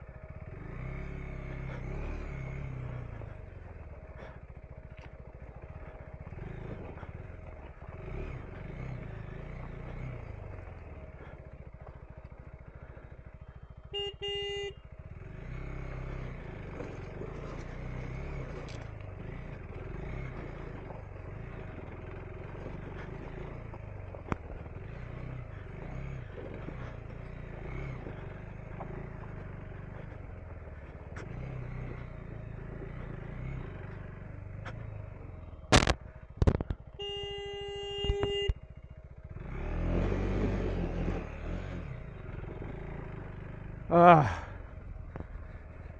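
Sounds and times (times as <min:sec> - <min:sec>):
motorcycle engine running: 0:00.0 - 0:45.9
horn beeping: 0:13.5 - 0:15.5, 0:36.8 - 0:38.8.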